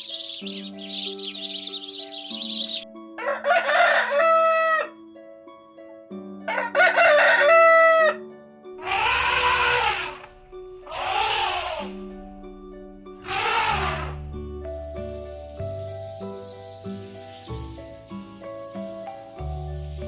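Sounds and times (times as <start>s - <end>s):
background music: 0.0s - 20.0s
rooster crowing: 3.2s - 5.0s, 6.5s - 8.2s, 8.8s - 10.2s, 10.9s - 11.9s.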